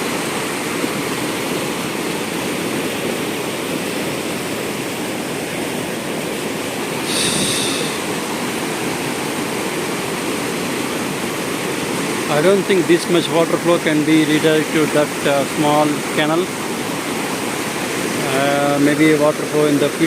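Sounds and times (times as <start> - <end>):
river rushing: 0.0 - 20.0
brief high-pitched sound: 7.1 - 8.1.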